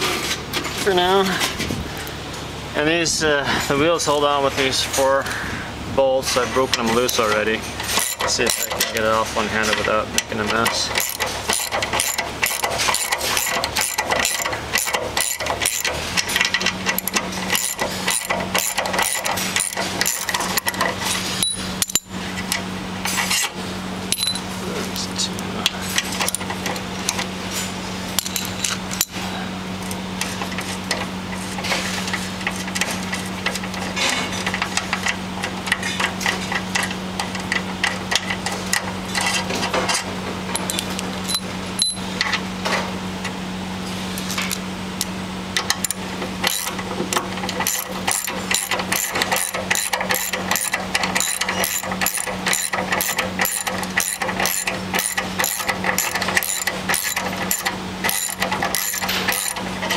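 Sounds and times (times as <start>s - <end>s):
ratchet wrench clicking: 7.9s - 9.0s, 10.5s - 22.1s, 45.8s - 46.8s, 47.4s - 59.9s.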